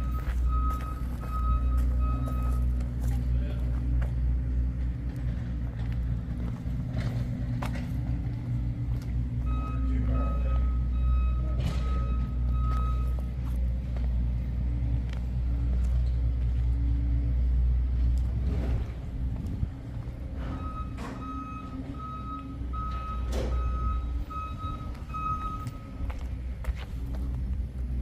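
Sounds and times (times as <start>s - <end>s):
reversing alarm beeps: 0.0s - 2.8s, 9.4s - 13.5s, 20.4s - 26.3s
vehicle engine rumbling: 0.0s - 28.0s.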